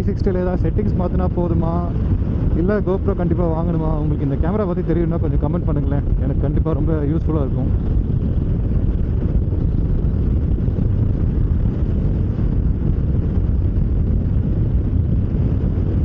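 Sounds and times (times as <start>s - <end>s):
road and wind noise: 0.0s - 16.0s
motorcycle engine running: 7.6s - 16.0s.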